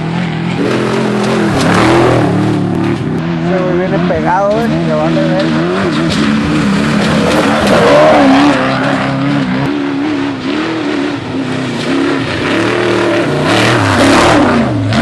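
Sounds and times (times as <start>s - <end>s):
truck engine revving: 0.0s - 15.0s
tyres on gravel: 0.0s - 15.0s.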